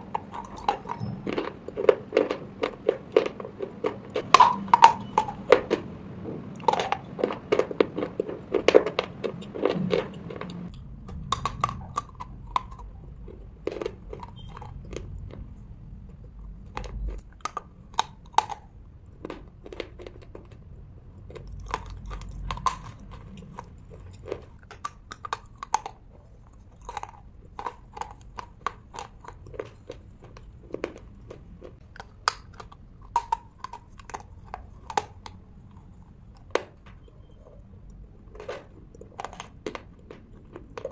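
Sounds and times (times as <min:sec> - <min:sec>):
person chewing: 0:00.0 - 0:40.9.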